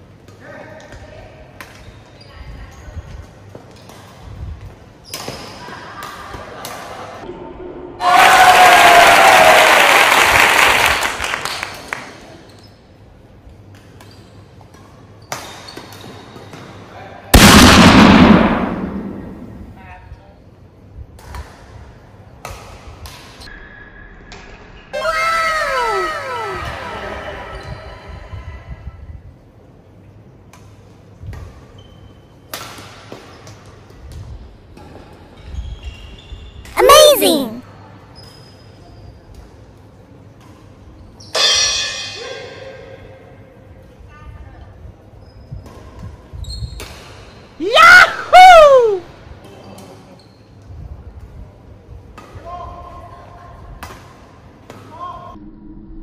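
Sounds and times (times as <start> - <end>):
applause: 8.5 - 12.1.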